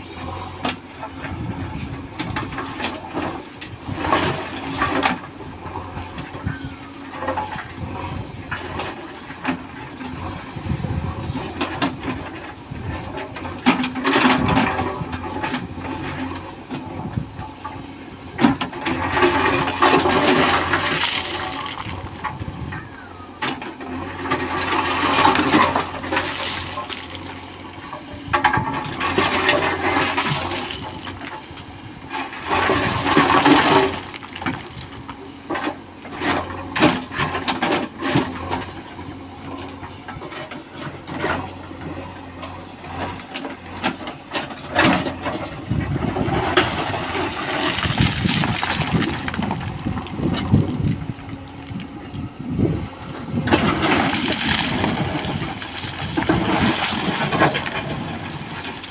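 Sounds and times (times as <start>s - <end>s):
diesel engine running: 0.0s - 58.9s
stones pouring and clattering: 19.9s - 22.2s, 24.8s - 27.5s, 29.3s - 31.2s, 32.6s - 34.9s, 47.1s - 50.2s, 53.7s - 58.9s.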